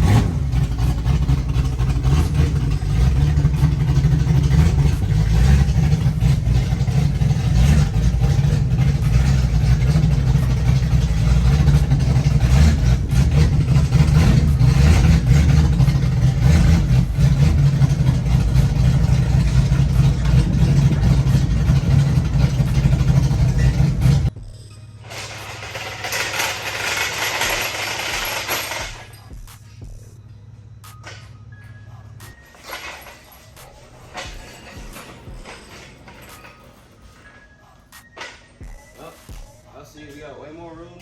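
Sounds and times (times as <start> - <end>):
car engine running low: 0.0 - 24.5.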